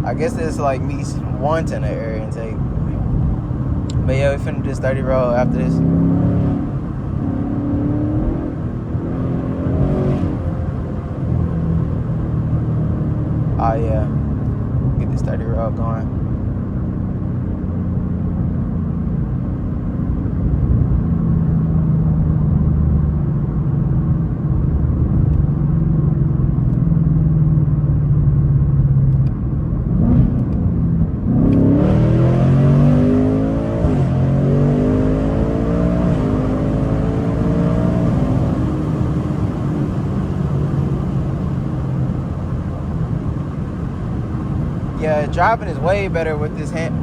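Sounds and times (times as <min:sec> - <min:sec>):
car engine revving through gears: 0:00.2 - 0:15.2, 0:29.8 - 0:47.0.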